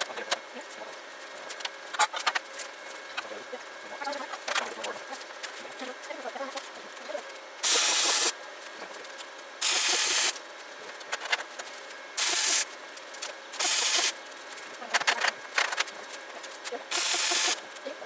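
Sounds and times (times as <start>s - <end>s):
sharp welding crackling: 4.1s - 18.0s
welding hiss: 7.6s - 8.4s, 9.6s - 10.4s, 12.2s - 12.8s, 13.5s - 14.2s, 16.9s - 17.8s.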